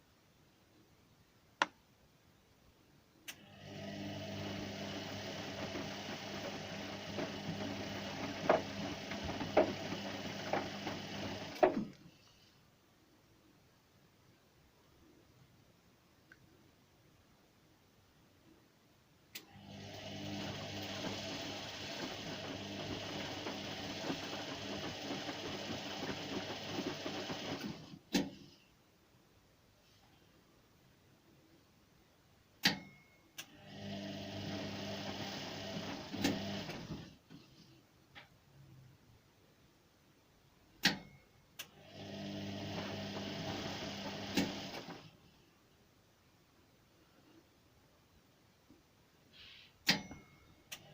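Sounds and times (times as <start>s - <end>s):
washing machine rattling: 4.5s - 11.9s, 20.3s - 27.9s.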